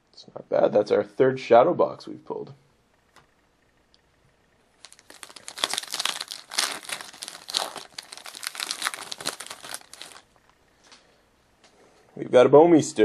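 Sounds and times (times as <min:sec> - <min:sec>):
card pack wrapper crinkling: 0:04.8 - 0:10.4.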